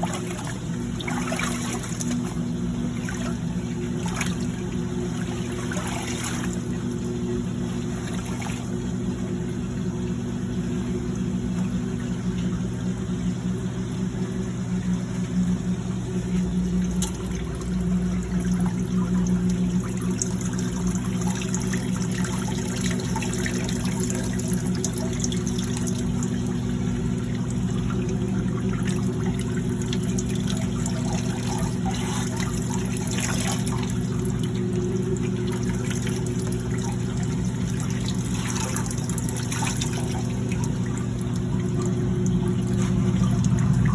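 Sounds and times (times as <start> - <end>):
agitator sloshing water: 0.0 - 43.9.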